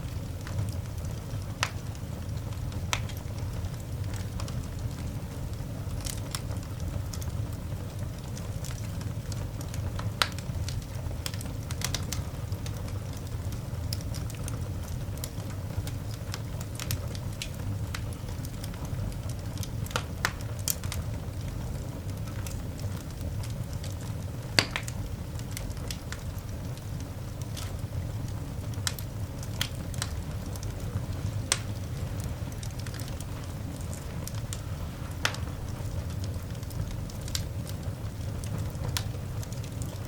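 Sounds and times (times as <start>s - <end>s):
coal fire crackling and popping: 0.0s - 40.0s
low fire rumble: 0.0s - 40.0s.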